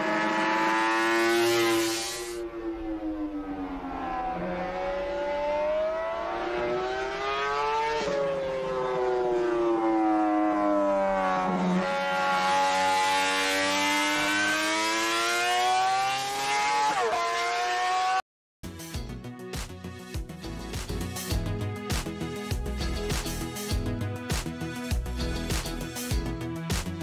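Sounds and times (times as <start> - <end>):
racing motorcycle engine wailing: 0.0 - 18.2.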